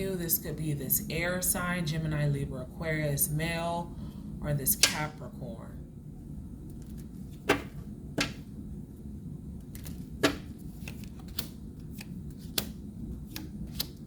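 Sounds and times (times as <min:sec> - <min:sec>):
cards snapping and tapping: 0:06.8 - 0:08.4, 0:09.7 - 0:14.0.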